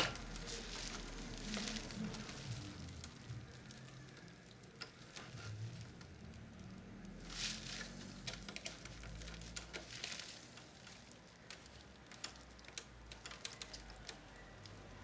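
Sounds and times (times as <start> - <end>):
small clicks on plastic: 10.9 - 14.8.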